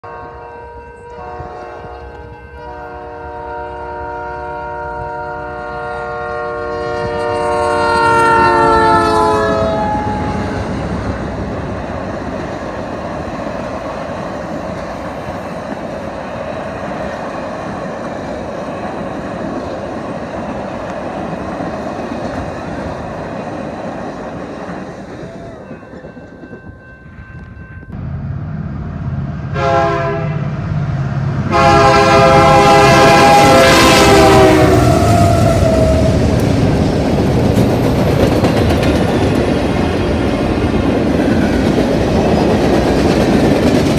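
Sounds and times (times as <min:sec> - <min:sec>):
multi-note train air horn: 0:00.0 - 0:10.7, 0:27.9 - 0:36.2
train cars rumbling and clattering: 0:06.7 - 0:29.5, 0:30.5 - 0:43.9.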